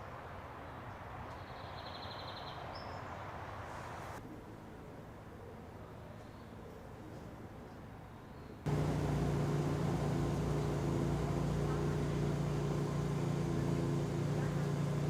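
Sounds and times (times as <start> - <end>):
engine humming steadily: 8.7 - 15.0.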